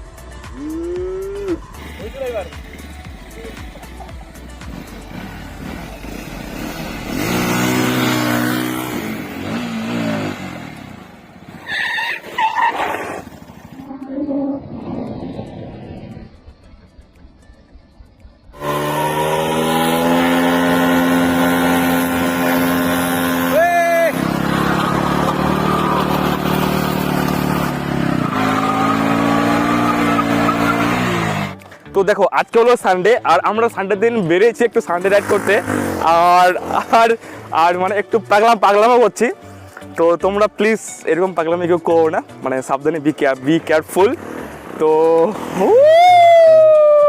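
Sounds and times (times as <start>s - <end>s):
motorcycle engine revving: 1.3s - 31.7s, 35.0s - 37.7s, 43.6s - 45.9s.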